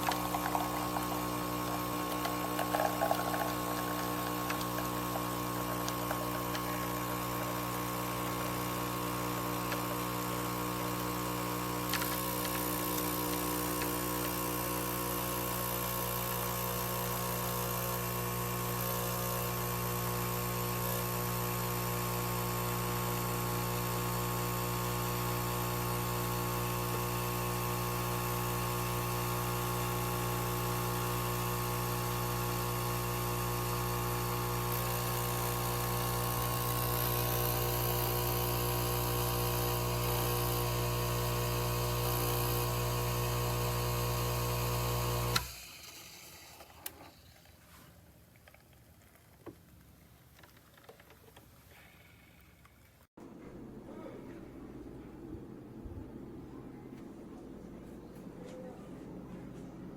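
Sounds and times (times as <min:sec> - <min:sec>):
electric appliance humming: 0:00.0 - 0:47.5.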